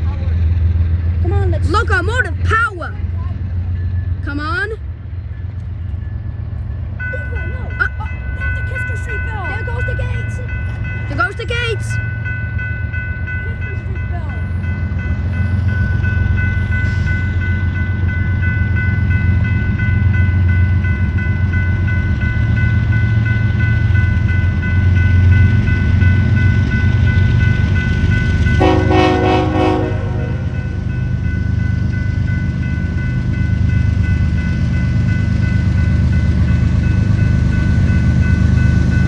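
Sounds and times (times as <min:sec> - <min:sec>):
train rumbling: 0:00.0 - 0:39.0
crossing bells ringing: 0:00.8 - 0:39.0
train horn blast: 0:28.6 - 0:30.6.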